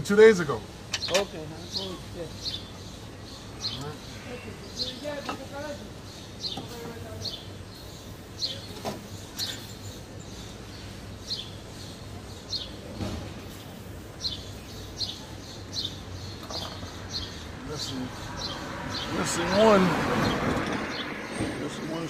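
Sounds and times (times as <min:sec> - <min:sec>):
bird chirping: 0:00.9 - 0:22.0.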